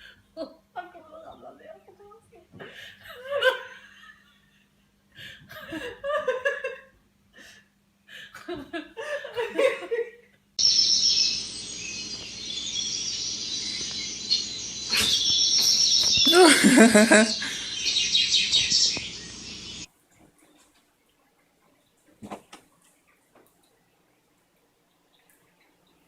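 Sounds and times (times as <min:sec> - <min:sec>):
high-pitched chirping: 0:10.6 - 0:19.9
person laughing: 0:16.2 - 0:17.9.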